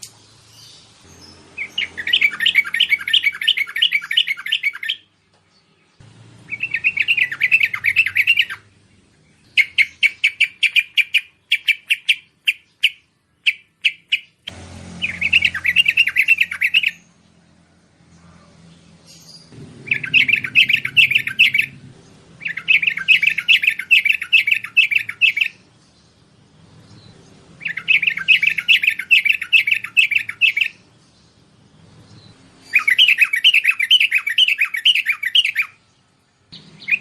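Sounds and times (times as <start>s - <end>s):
bulbul chattering call: 0.0s - 5.1s, 6.5s - 8.7s, 9.5s - 17.1s, 19.1s - 25.6s, 27.6s - 30.8s, 32.6s - 35.8s.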